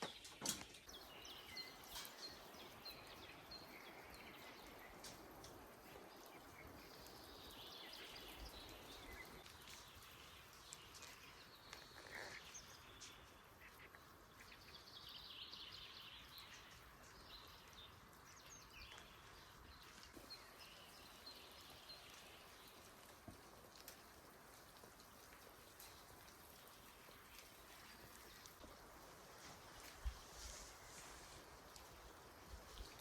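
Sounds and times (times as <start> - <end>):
background hiss: 0.0 - 33.0
small ticks: 22.0 - 28.8.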